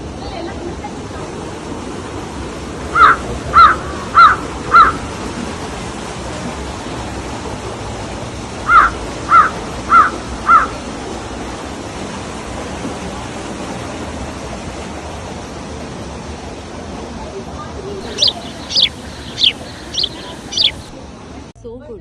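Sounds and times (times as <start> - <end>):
crow cawing: 3.0 - 5.0, 8.7 - 10.7, 18.1 - 20.9.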